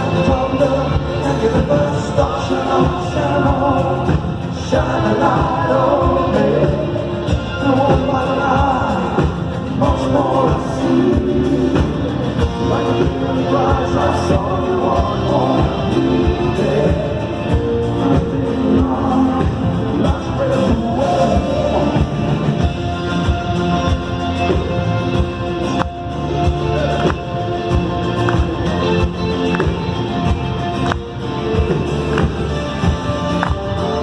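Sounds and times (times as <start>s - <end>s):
drums: 0.0s - 34.0s
person singing over music: 0.0s - 34.0s
rock band playing live: 0.0s - 34.0s.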